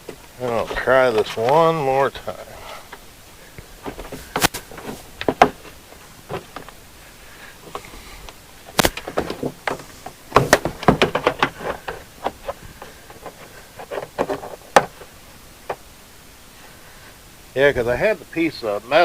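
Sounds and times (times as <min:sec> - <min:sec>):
trim panel knocks and clunks: 0:03.9 - 0:05.7, 0:09.0 - 0:12.4.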